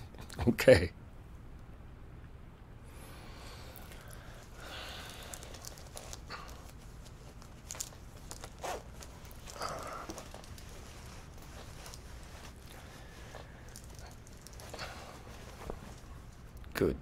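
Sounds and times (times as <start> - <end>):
clothing rustling: 3.3 - 16.6.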